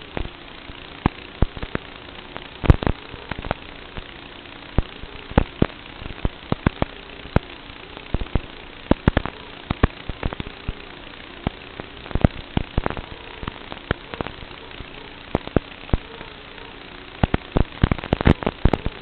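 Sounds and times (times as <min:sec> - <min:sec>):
drone motors humming: 0:00.0 - 0:19.0
sharp clicks and knocks: 0:01.0 - 0:04.1, 0:04.8 - 0:10.8.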